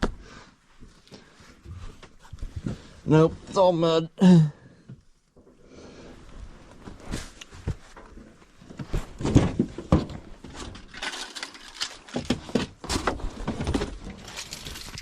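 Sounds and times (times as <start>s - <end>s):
rustling: 6.2s - 15.0s
tools clattering in toolbox: 10.6s - 15.0s.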